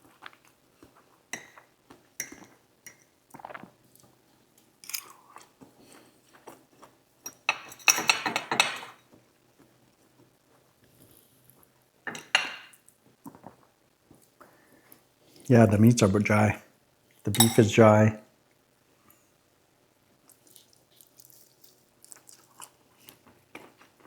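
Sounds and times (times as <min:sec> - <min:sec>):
person chewing: 0:20.3 - 0:24.0.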